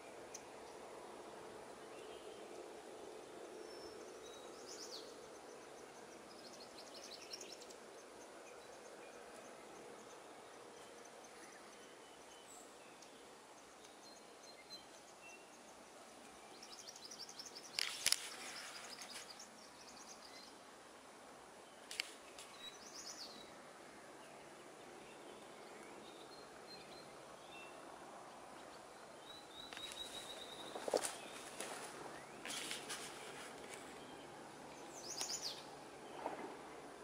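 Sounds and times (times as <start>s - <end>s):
faint woodland ambience: 0.0s - 37.0s
bird chirps: 28.6s - 36.3s.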